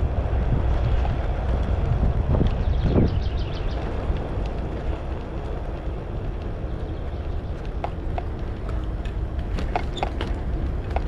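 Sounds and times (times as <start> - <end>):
road rumble: 0.0 - 11.0
wind buffeting microphone: 0.0 - 11.0.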